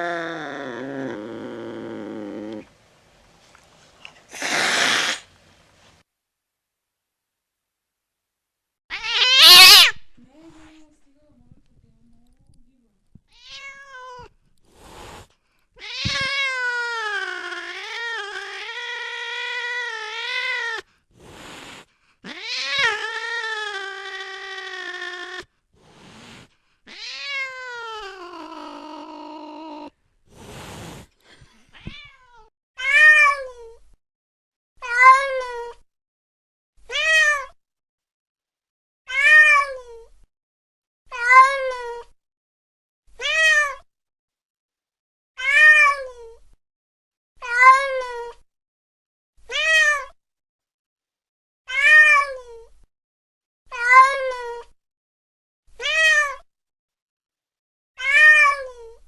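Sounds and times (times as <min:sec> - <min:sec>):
cat meowing: 0:04.3 - 0:05.2, 0:08.9 - 0:10.1, 0:13.3 - 0:14.4, 0:15.8 - 0:20.8, 0:22.3 - 0:25.5, 0:26.9 - 0:29.9, 0:31.7 - 0:33.6, 0:36.9 - 0:37.6, 0:39.1 - 0:39.9, 0:43.2 - 0:43.8, 0:45.4 - 0:46.2, 0:49.5 - 0:50.2, 0:51.7 - 0:52.4, 0:53.7 - 0:54.7, 0:55.8 - 0:56.4, 0:58.0 - 0:58.9.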